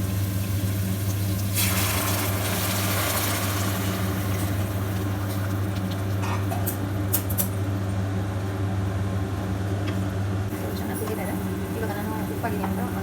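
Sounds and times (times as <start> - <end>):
water hissing in hot pan: 0.0 - 4.8.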